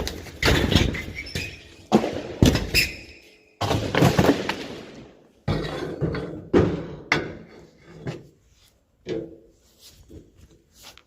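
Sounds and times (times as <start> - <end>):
drywall crashing: 0.0 - 7.1.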